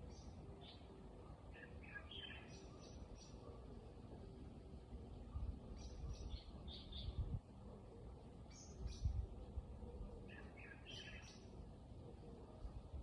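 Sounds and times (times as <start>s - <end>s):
small birds chirping: 0.0s - 3.7s, 5.6s - 7.4s, 8.3s - 9.4s, 10.0s - 11.6s
faint outdoor background: 0.0s - 13.0s.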